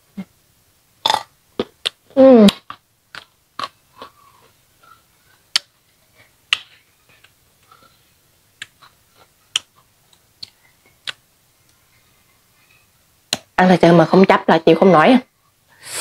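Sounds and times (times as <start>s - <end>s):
faint mouth sounds: 1.0s - 11.2s.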